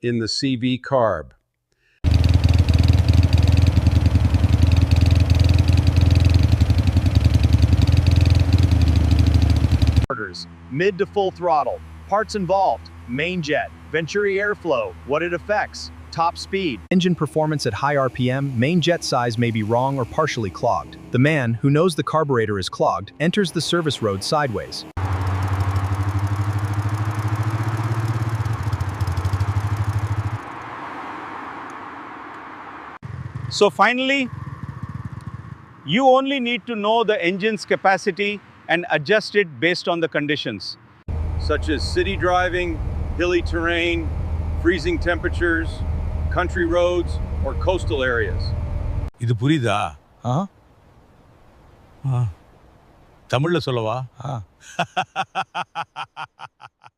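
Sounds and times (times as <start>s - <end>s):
motorcycle engine fast idle: 2.0s - 10.0s, 25.0s - 30.4s, 34.3s - 35.6s.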